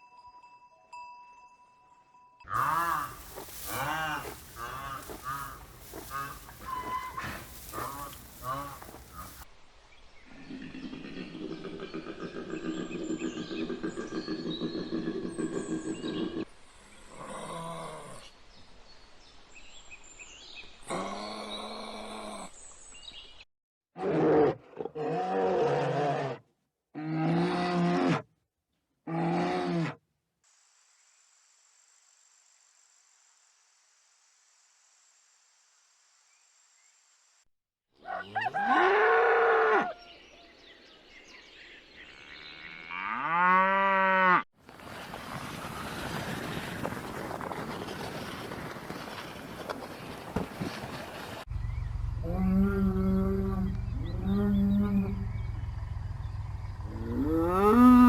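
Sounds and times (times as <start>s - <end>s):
animal calls: 2.5s - 9.4s, 38.0s - 40.1s, 51.5s - 58.0s.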